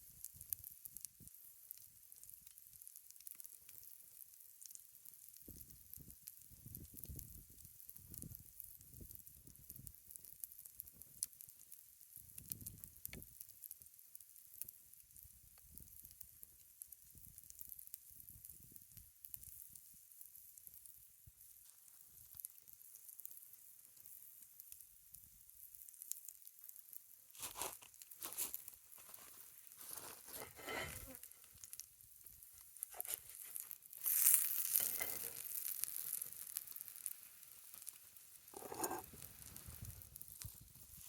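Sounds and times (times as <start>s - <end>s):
campfire sizzling and crackling: 0.0s - 41.0s.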